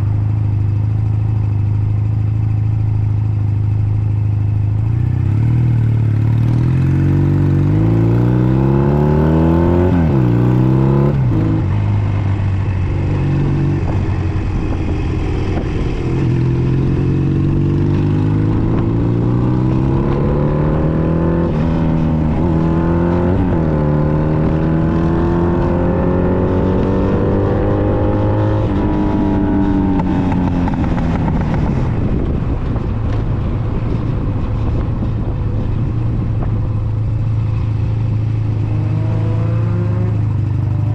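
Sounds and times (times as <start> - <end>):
motorcycle engine idling: 0.0 - 5.1, 11.6 - 17.2
motorcycle engine revving through gears: 0.0 - 40.9.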